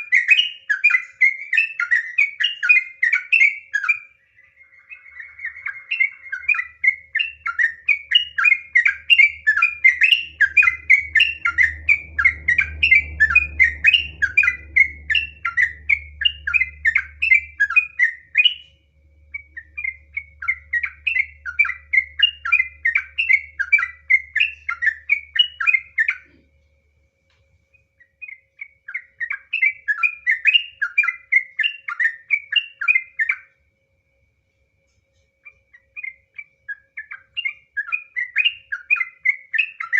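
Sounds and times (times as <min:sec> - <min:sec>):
bulbul singing rapid notes: 0:00.0 - 0:18.7
faint low hum: 0:00.0 - 0:39.9.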